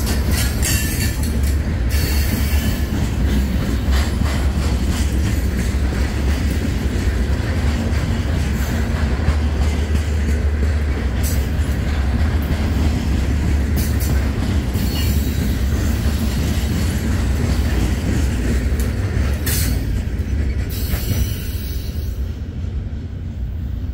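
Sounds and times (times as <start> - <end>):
train wheel clatter: 0.0 - 23.2
freight train rumble: 0.0 - 23.9.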